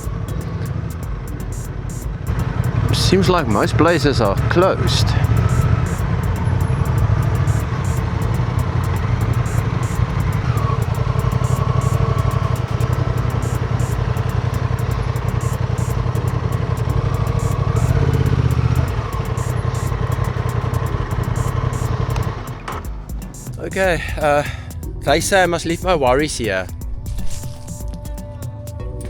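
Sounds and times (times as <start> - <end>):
motorcycle engine running: 0.0 - 28.7.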